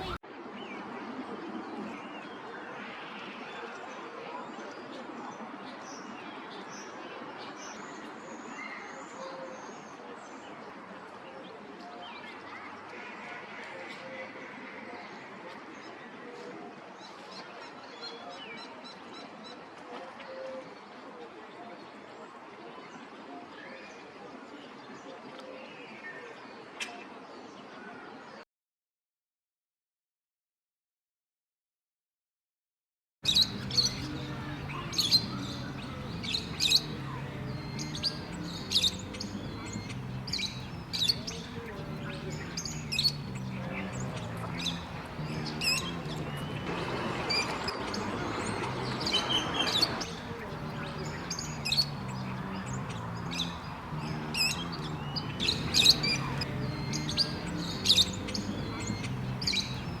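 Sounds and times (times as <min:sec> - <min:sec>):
birds squawking and chirping: 0:00.0 - 0:00.2, 0:33.3 - 1:00.0.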